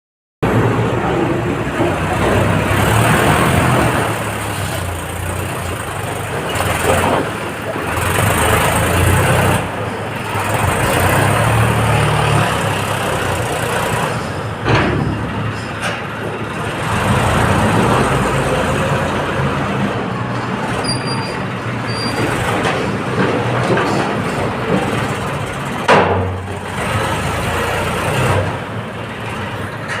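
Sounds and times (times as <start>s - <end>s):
tractor diesel engine under load: 0.4s - 30.0s
sharp knocks or clanks: 14.6s - 16.4s, 25.8s - 26.6s.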